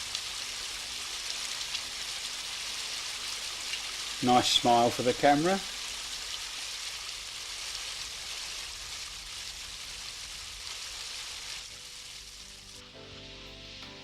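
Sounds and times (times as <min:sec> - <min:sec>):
faint music: 0:11.7 - 0:14.0.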